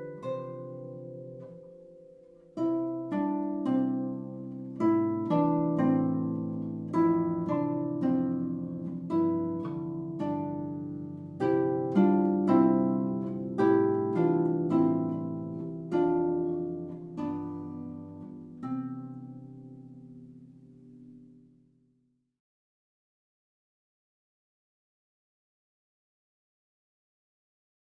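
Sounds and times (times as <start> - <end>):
solo harp playing: 0.0 - 21.6.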